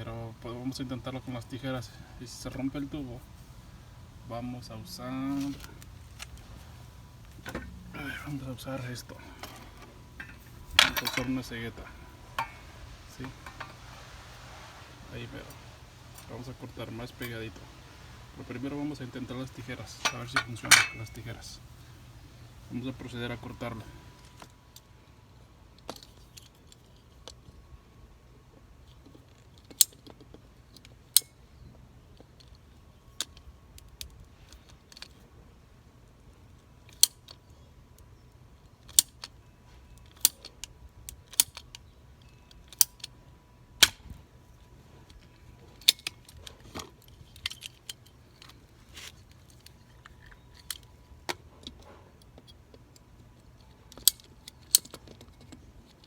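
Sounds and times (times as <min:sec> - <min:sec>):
shears clicking: 0:01.2 - 0:24.4.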